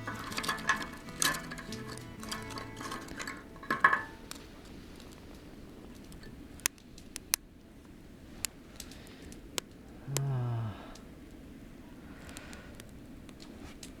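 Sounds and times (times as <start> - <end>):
cooking gear clattering: 0.0 - 5.1
wood fire crackling: 0.0 - 10.3, 10.9 - 14.0.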